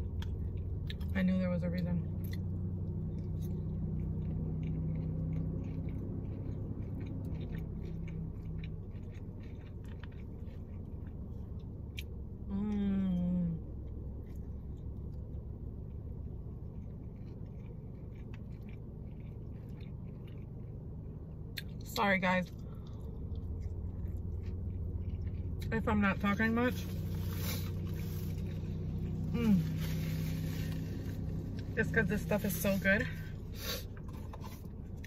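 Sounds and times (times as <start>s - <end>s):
soft chewing with wet mouth clicks: 0.0s - 1.1s, 1.7s - 12.2s, 13.8s - 21.9s, 22.5s - 25.7s
low steady hum: 0.0s - 35.0s
person humming mmm: 29.3s - 29.9s.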